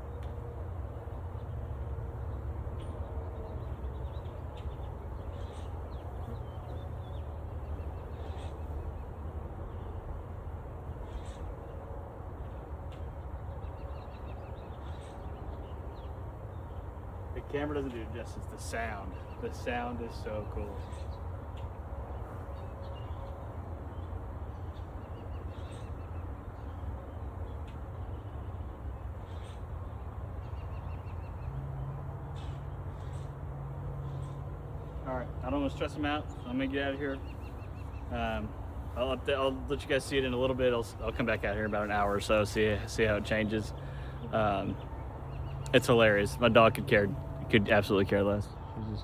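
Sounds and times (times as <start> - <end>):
small birds chirping: 0.0 - 49.0
honey bees buzzing: 32.2 - 48.4.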